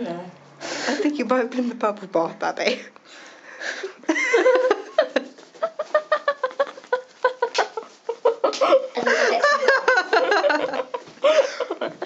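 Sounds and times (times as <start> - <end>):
young women laughing: 3.6 - 12.0.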